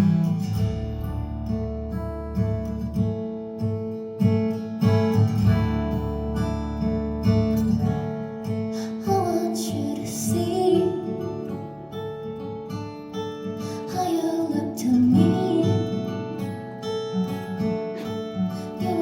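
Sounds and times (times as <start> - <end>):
acoustic guitar strumming: 0.0 - 19.0
low held bass note: 0.6 - 2.9
person singing: 8.8 - 11.4, 13.8 - 16.6, 18.6 - 19.0.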